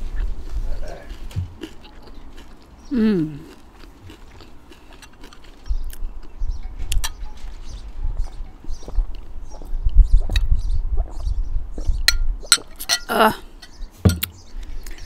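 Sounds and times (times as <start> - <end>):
chewing: 0.1 - 11.2
falling vocal hum: 2.9 - 3.4.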